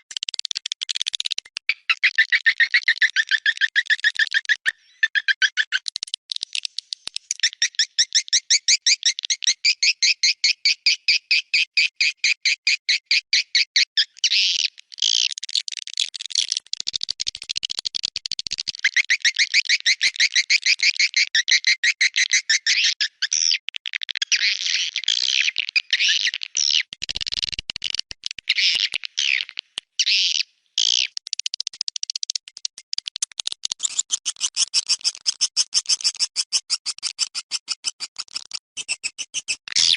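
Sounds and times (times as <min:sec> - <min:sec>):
swiftlet chirps and twittering: 0:33.8 - 0:39.9.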